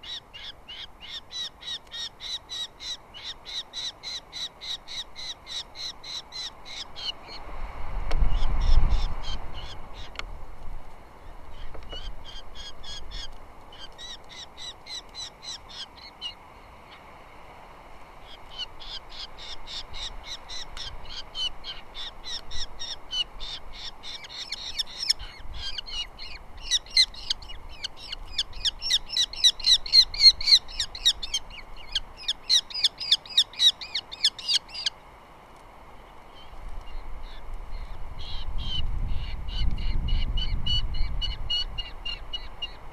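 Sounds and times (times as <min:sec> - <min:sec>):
osprey chirping calls: 0:00.0 - 0:07.4, 0:08.3 - 0:10.2, 0:11.5 - 0:17.0, 0:18.2 - 0:35.0, 0:36.3 - 0:42.9.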